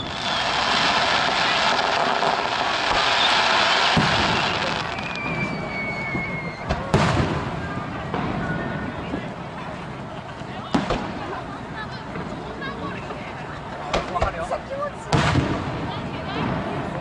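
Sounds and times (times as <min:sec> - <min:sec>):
firework bang: 0:00.0 - 0:09.2, 0:10.6 - 0:11.3, 0:15.1 - 0:16.8
firework whistle: 0:00.0 - 0:09.2
fireworks crackling: 0:00.0 - 0:17.0.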